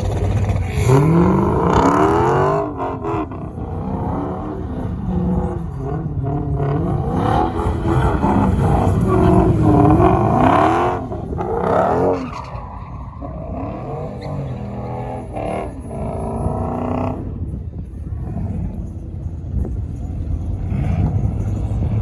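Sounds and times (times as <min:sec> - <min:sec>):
truck engine revving: 0:00.0 - 0:22.0
tyre squeal: 0:07.0 - 0:17.2.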